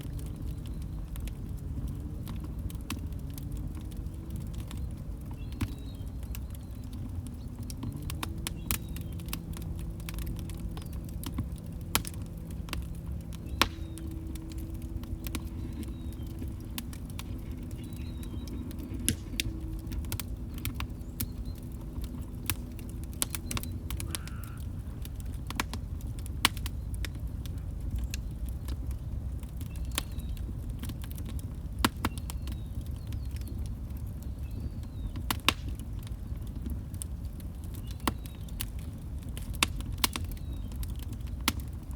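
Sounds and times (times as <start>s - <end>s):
fire crackling and popping: 0.0s - 41.9s
fire rumbling: 0.0s - 41.9s.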